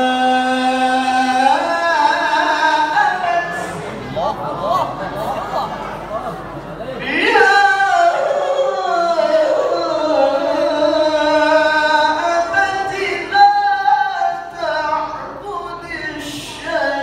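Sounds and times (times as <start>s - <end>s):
person reciting in melodic chant: 0.0s - 17.0s.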